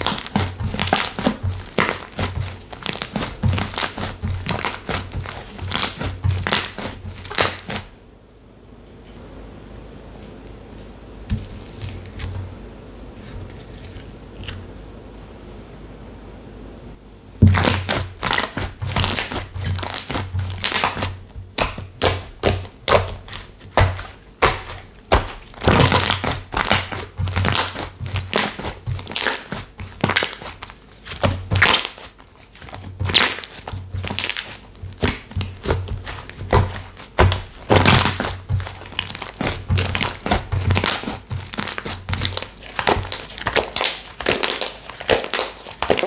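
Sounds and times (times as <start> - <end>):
slime squished by hand: 0.0 - 7.9, 17.4 - 46.0
crackling pops: 32.6 - 46.0.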